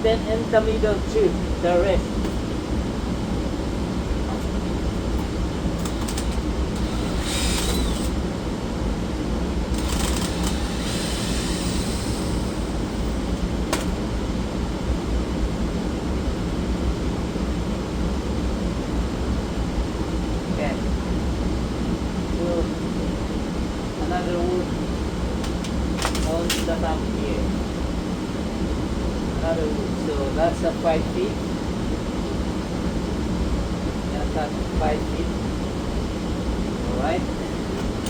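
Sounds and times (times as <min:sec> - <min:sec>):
low mechanical hum: 0:00.0 - 0:38.0
sharp click: 0:12.5 - 0:14.0, 0:25.4 - 0:26.8.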